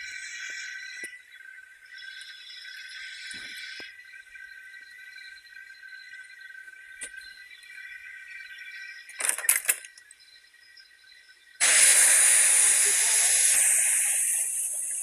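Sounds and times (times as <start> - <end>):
crickets chirping: 0.0 - 15.0
steam hissing from steam engine: 11.6 - 15.0.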